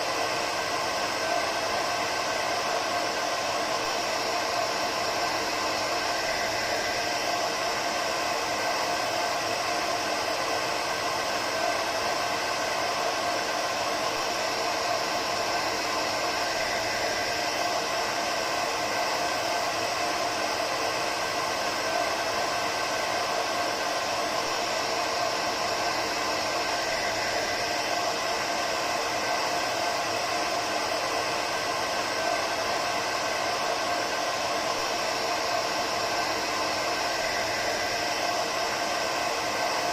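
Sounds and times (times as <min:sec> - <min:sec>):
hair dryer blowing air: 0:00.0 - 0:39.9.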